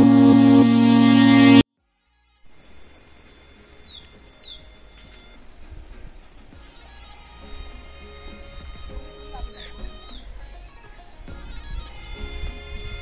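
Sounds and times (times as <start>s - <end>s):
background music: 0.0s - 1.6s, 2.5s - 13.0s
faint steady hiss: 1.5s - 13.0s
bird warbling chirps: 2.5s - 5.0s, 6.6s - 7.8s, 8.5s - 12.8s.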